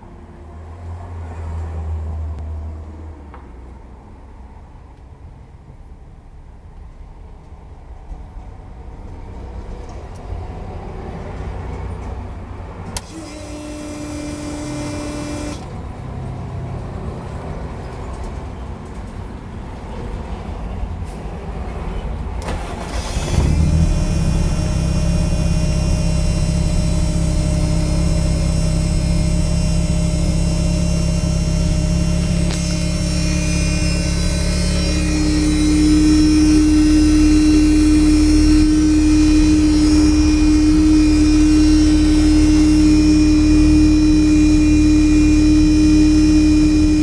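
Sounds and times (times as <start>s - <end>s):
car engine starting and idling: 11.5s - 16.1s, 22.4s - 47.0s
starter whine: 12.9s - 15.8s, 22.4s - 47.0s.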